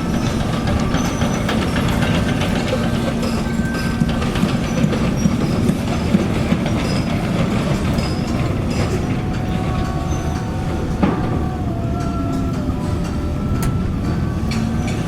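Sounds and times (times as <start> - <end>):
diesel engine running: 0.0 - 15.0
metal rattles and clanks: 0.0 - 15.0.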